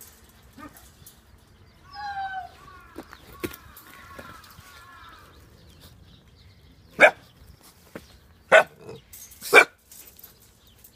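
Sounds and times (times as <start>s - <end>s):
puppies barking: 7.0s - 7.4s, 8.5s - 9.8s.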